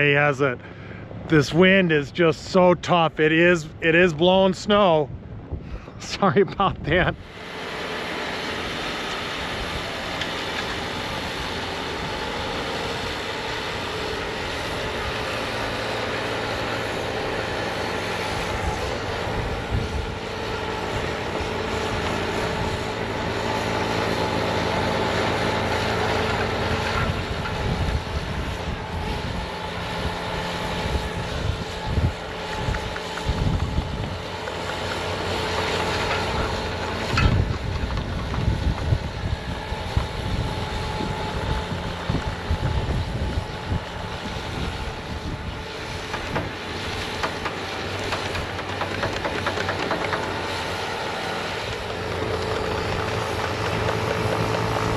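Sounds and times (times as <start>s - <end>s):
loader engine drone: 0.0s - 54.9s
wind buffeting microphone: 4.4s - 7.5s, 18.0s - 23.2s, 26.5s - 49.2s.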